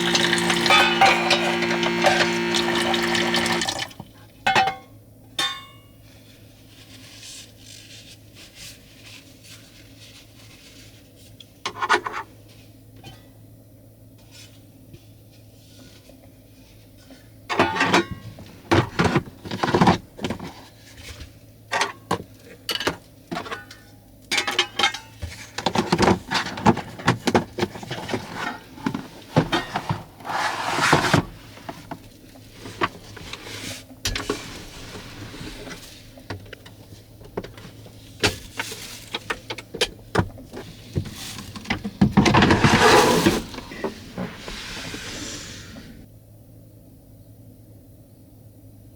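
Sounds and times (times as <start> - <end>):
objects clattering and knocking: 0.0 - 5.7, 17.5 - 45.0.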